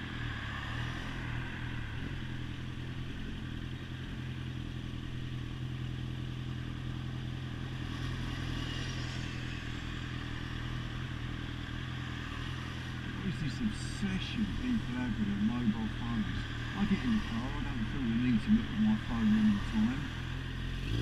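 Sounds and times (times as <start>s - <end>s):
motorcycle engine running: 0.0s - 21.0s
steady rushing noise: 7.5s - 21.0s.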